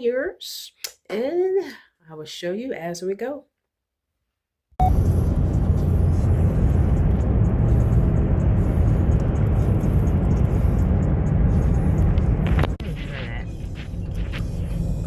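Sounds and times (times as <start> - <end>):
road and engine noise inside car: 4.8 - 15.0.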